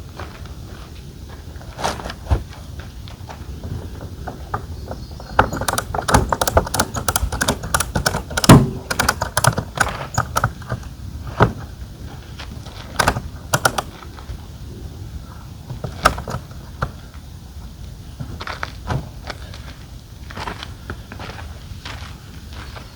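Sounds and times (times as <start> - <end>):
light clicks and rattles of gear: 5.3 - 11.0, 12.7 - 14.0.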